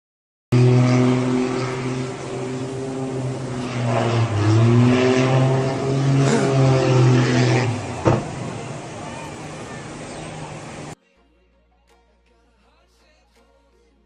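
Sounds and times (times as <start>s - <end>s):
engine drone: 0.5s - 11.0s.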